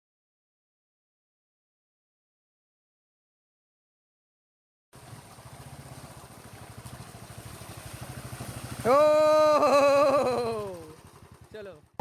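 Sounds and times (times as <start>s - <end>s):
low pulsing vehicle engine: 5.0s - 12.0s.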